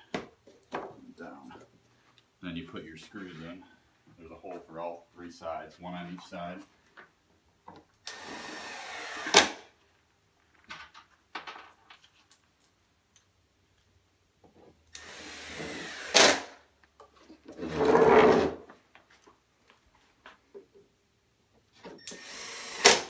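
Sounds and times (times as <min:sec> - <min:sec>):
cordless drill driving screws: 0:08.0 - 0:09.6, 0:14.9 - 0:16.5, 0:22.0 - 0:23.0.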